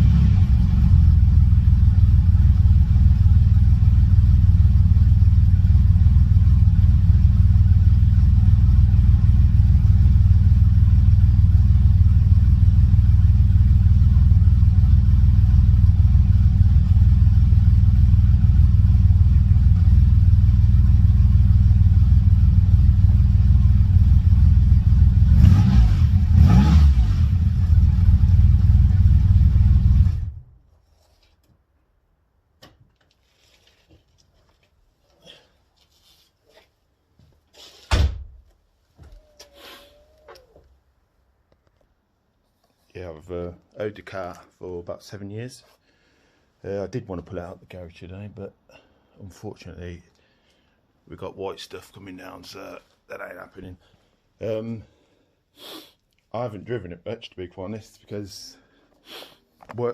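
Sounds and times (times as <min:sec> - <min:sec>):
car engine idling: 0:00.4 - 0:25.4.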